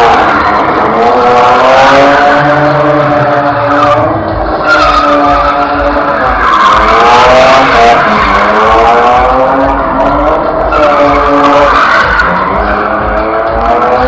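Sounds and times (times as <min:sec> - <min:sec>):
car engine revving: 0:00.0 - 0:14.0
tyres squealing: 0:10.6 - 0:14.0.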